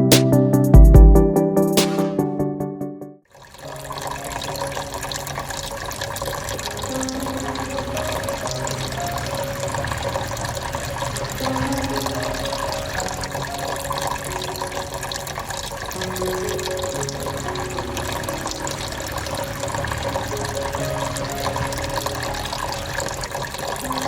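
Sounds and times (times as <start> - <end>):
water falling and splashing: 3.3 - 24.0.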